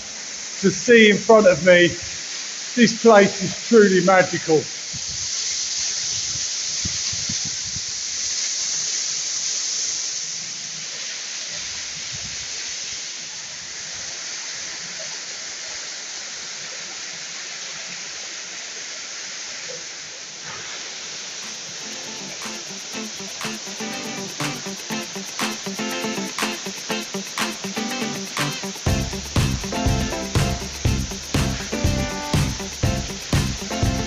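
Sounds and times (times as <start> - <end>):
waterfall rushing onto pebbles: 0.0 - 34.0.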